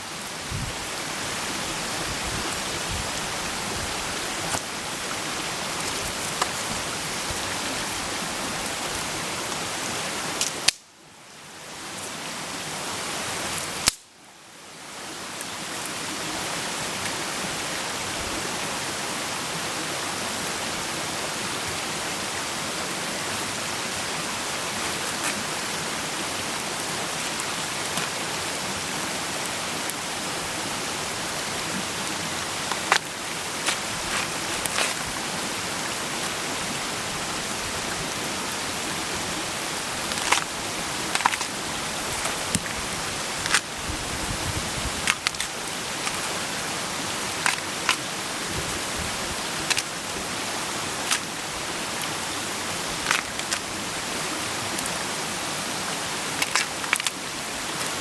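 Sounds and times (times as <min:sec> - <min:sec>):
campfire pops and crackles: 0:10.4 - 0:10.9, 0:13.8 - 0:14.1, 0:40.0 - 0:42.8, 0:43.4 - 0:44.4, 0:45.0 - 0:46.2, 0:47.4 - 0:48.1, 0:53.0 - 0:53.6, 0:56.4 - 0:57.1.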